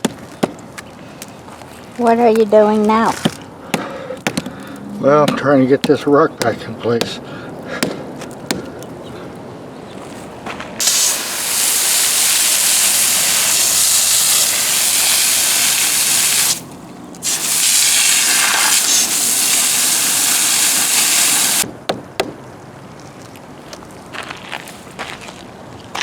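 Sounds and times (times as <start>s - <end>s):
loud spraying hiss: 10.8s - 21.6s.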